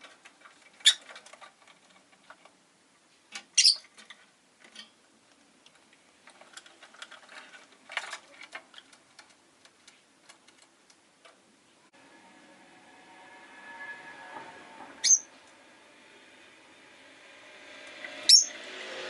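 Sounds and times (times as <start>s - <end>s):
rustling: 0.0s - 11.9s
bird chirp: 3.6s - 3.9s, 15.0s - 15.4s, 18.3s - 18.6s
low steady hum: 4.0s - 18.2s.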